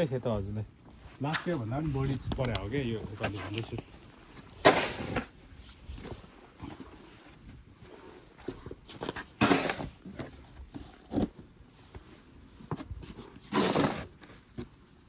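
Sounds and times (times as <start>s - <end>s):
snow shovel scraping snow: 4.6s - 5.3s, 9.4s - 9.9s, 13.5s - 14.1s.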